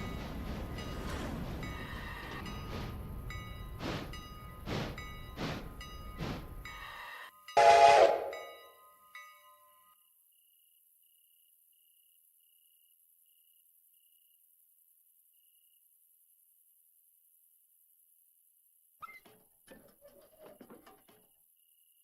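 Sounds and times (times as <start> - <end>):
train whistle blast: 6.8 - 8.7.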